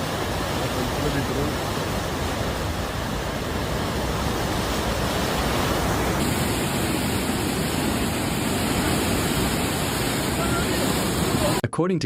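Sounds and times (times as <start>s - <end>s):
floodwater rushing: 0.0s - 11.6s.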